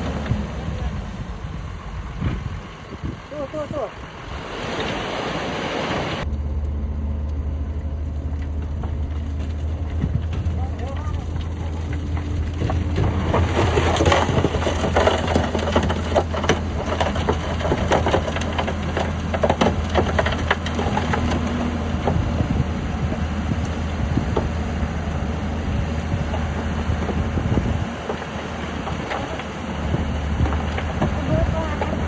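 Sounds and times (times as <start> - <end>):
heavy diesel engine running: 6.2 - 32.0
rock crunching and cracking: 7.9 - 32.0.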